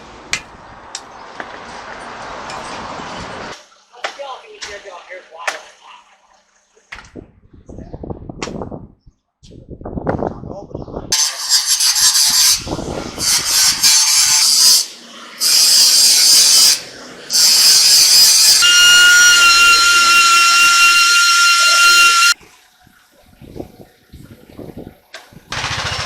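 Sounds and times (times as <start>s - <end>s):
power tool working on metal: 11.2s - 22.4s, 25.5s - 26.0s
steady high whine: 18.6s - 22.4s.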